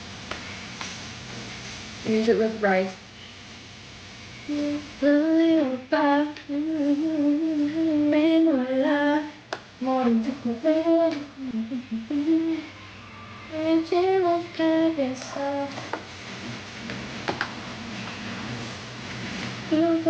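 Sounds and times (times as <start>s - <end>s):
woman humming a tune: 4.5s - 12.7s.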